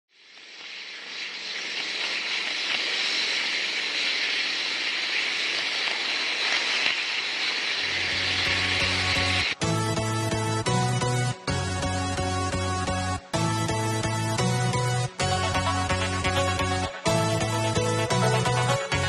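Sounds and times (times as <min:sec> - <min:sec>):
background music: 0:07.9 - 0:19.0.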